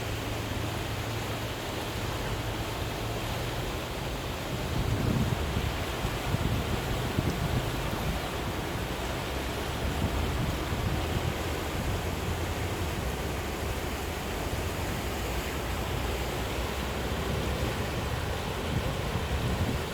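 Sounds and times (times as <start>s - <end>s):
river rushing: 0.0s - 19.9s.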